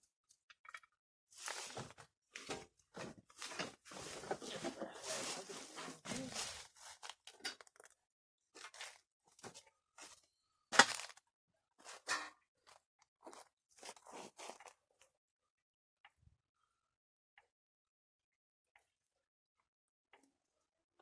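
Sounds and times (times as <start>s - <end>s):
rustling in dry leaves: 4.0s - 7.1s.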